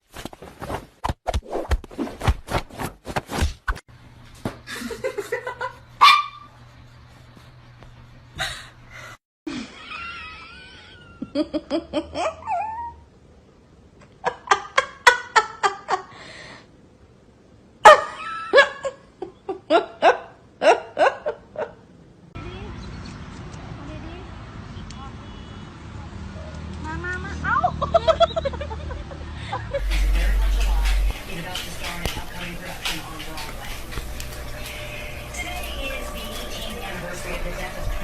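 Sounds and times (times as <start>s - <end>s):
people laughing: 4.7s - 5.8s, 9.5s - 12.4s, 27.5s - 32.0s.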